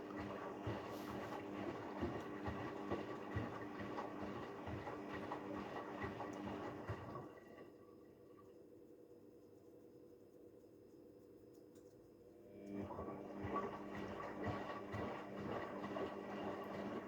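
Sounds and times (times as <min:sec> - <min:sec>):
washing machine motor hum: 0:00.0 - 0:07.8, 0:12.5 - 0:17.0.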